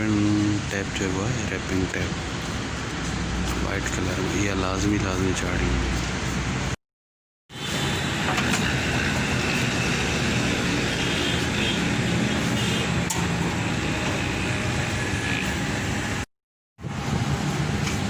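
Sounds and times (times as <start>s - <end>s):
machine humming and hissing: 7.6s - 18.0s.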